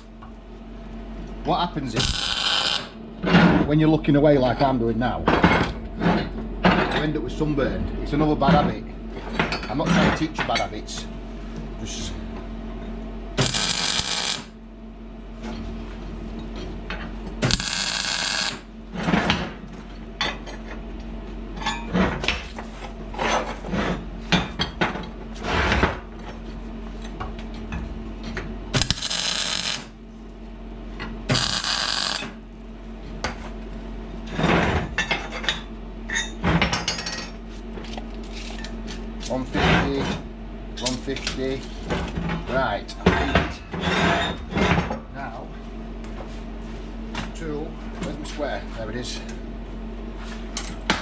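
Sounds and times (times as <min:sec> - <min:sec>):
welder crackling: 0:02.0 - 0:03.0, 0:13.4 - 0:14.5, 0:17.4 - 0:18.7, 0:28.8 - 0:30.0, 0:31.3 - 0:32.4.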